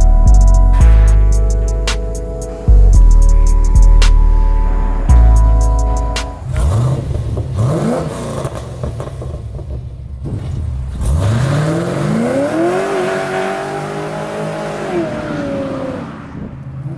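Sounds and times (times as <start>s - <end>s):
car engine revving: 0.0s - 16.9s
rear tyres spinning: 6.4s - 16.9s.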